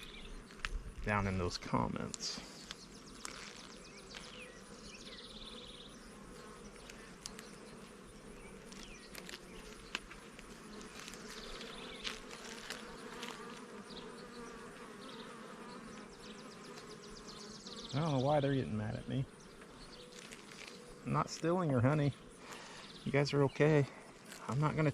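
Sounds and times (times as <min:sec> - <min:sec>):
clicks from hive frames: 0:00.0 - 0:00.8, 0:02.0 - 0:04.6, 0:06.4 - 0:14.5, 0:15.2 - 0:17.0
honey bees buzzing: 0:00.0 - 0:24.9.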